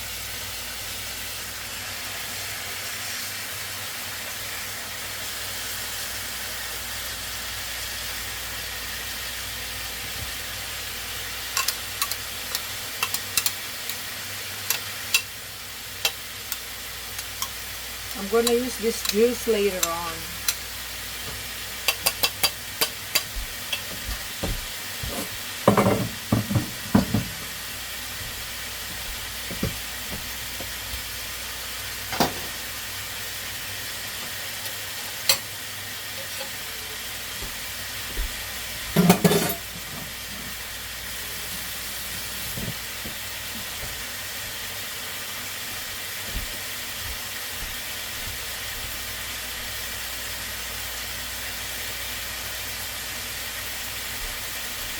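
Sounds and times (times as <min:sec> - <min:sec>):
chicken sizzling in a frying pan: 0:00.0 - 0:54.9
utensil knocking against pan: 0:21.9 - 0:27.4.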